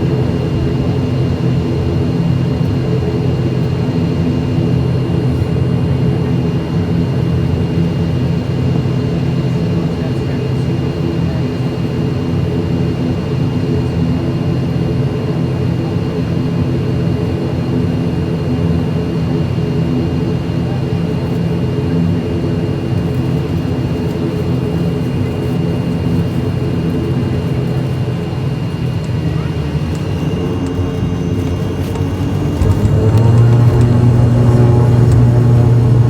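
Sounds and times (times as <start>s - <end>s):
turboprop engines droning: 0.0s - 36.0s
high whine: 28.8s - 36.0s.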